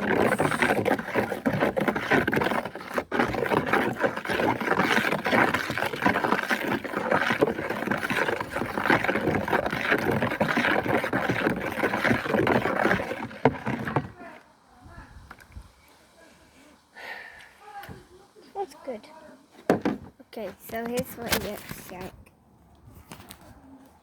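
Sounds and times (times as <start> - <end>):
spoon scraping container: 0.0 - 14.4
water sloshing: 0.0 - 14.4.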